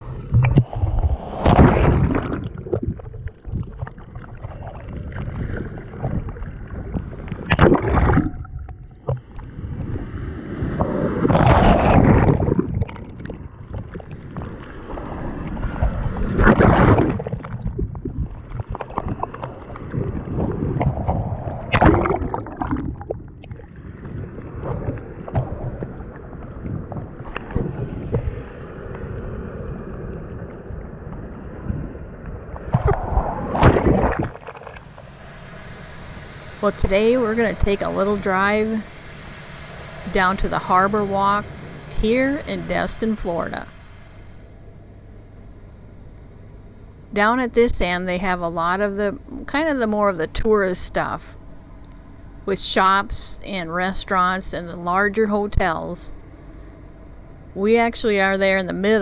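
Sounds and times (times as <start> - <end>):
wind: 0.0 - 59.0
water rushing: 32.8 - 59.0.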